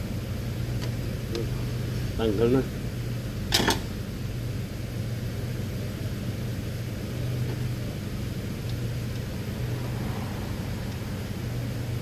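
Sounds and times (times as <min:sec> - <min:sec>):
low droning hum: 0:00.0 - 0:12.0.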